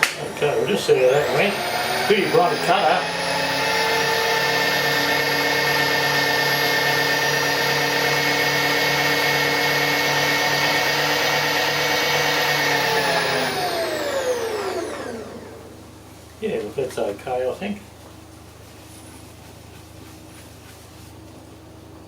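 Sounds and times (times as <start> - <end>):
milling machine motor whine: 0.0 - 16.0.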